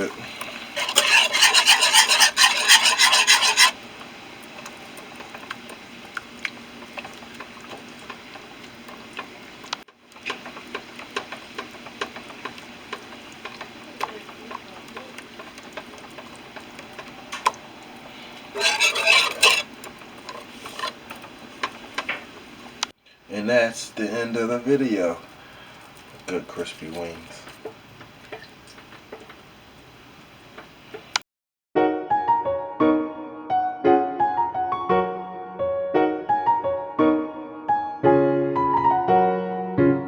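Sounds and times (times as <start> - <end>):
sauce mixed in a bowl: 0.0 - 3.8, 4.9 - 22.8, 23.4 - 28.8.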